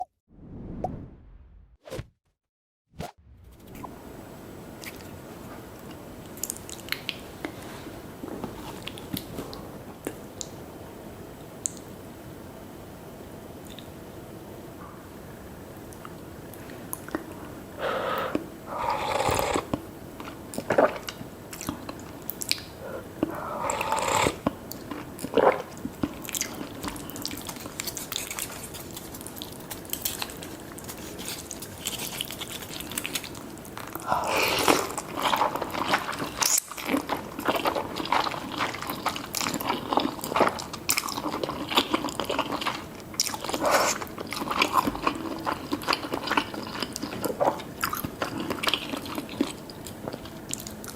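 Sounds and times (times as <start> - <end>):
noisy eating bursts: 16.6 - 50.9.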